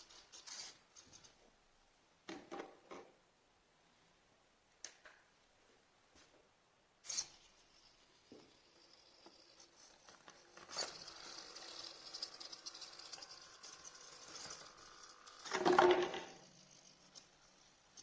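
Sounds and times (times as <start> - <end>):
servo motors whining: 7.1 - 17.6.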